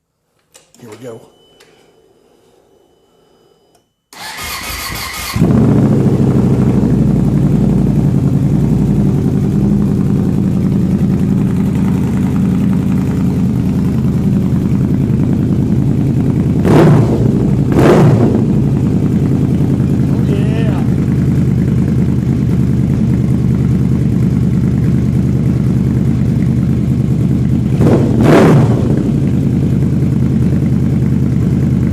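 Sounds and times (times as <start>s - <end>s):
starter cranking engine: 4.2s - 5.6s
motorcycle engine idling and revving: 4.2s - 31.9s.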